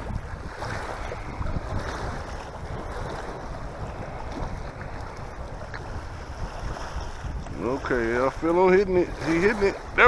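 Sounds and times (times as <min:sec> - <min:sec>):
small waves lapping: 0:00.0 - 0:10.0
wind blowing on microphone: 0:00.0 - 0:10.0.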